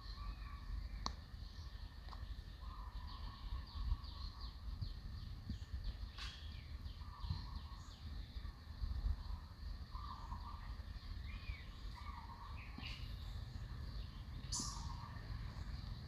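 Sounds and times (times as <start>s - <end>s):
birds chirping: 9.2s - 16.0s
low warbling bird call: 14.4s - 15.4s.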